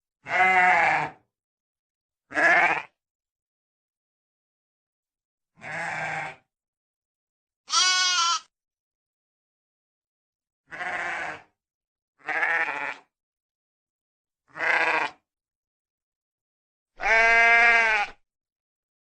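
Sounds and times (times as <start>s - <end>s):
sheep bleating: 0.2s - 1.2s, 2.3s - 3.0s, 5.6s - 6.4s, 7.7s - 8.5s, 10.7s - 11.5s, 12.2s - 13.1s, 14.5s - 15.2s, 17.0s - 18.2s.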